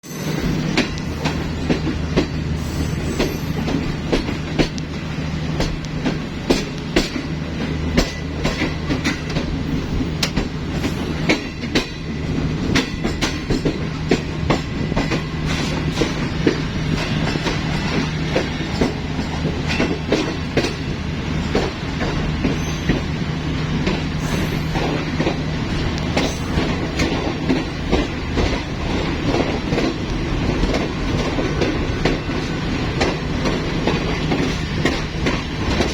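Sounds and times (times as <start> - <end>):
train low drone: 0.0 - 35.9
train wheels clacking over rail joints: 0.7 - 35.9.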